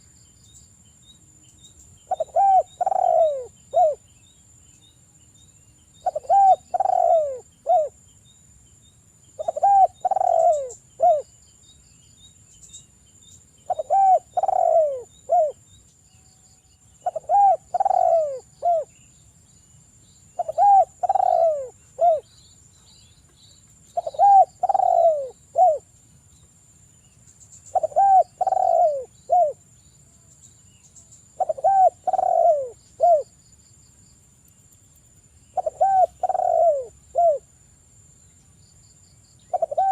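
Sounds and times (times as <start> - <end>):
dove cooing: 2.1 - 4.0, 6.0 - 8.0, 9.4 - 11.3, 13.7 - 15.6, 17.0 - 18.9, 20.4 - 22.3, 24.0 - 25.9, 27.7 - 29.6, 31.4 - 33.3, 35.6 - 37.5, 39.5 - 39.9.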